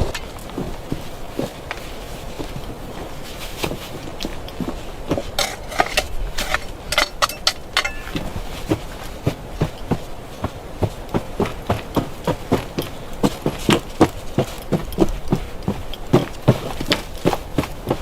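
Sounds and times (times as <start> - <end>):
hard objects knocking and clacking: 5.4 - 8.4.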